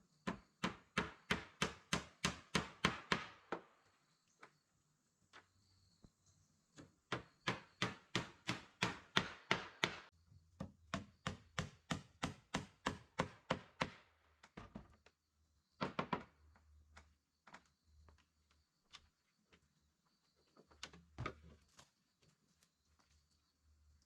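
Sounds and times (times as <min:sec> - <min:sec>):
hand tool chopping wood: 0:07.1 - 0:14.0.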